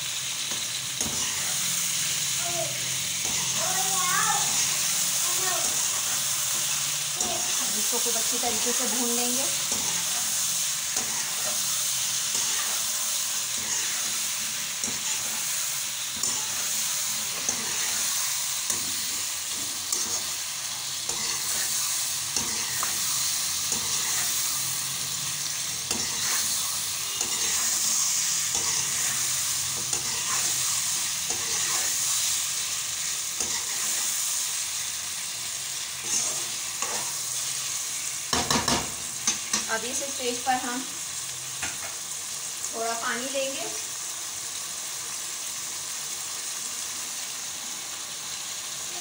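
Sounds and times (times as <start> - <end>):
potatoes sizzling in hot oil: 0.0 - 49.0
spatula scraping and tapping pan: 13.5 - 15.5, 16.1 - 20.4, 21.0 - 24.4, 27.1 - 30.6, 33.4 - 34.0.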